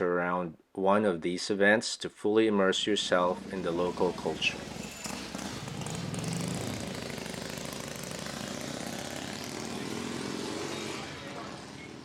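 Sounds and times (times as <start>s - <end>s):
motorcycle engine running: 3.1s - 12.0s.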